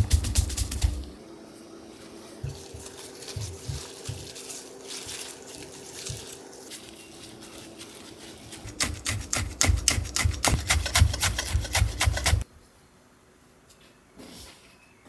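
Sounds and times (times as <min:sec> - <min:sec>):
rhythmic scraping on a board: 0:00.0 - 0:01.1, 0:02.4 - 0:12.4.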